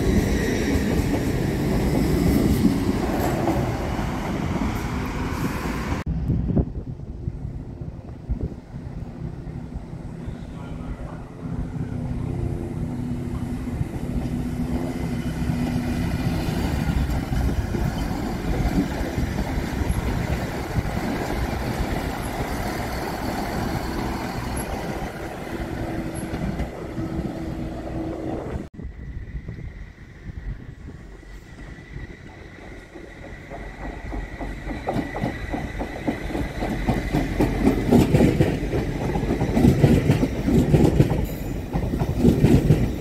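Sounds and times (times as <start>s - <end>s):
train running gear drone: 0.0s - 43.0s
train wheels rumbling on rails: 0.0s - 43.0s.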